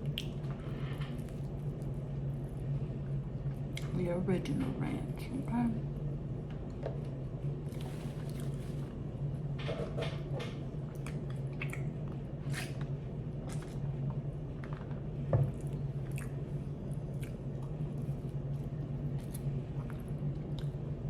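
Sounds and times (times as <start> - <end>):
person chewing: 17.0 - 20.7.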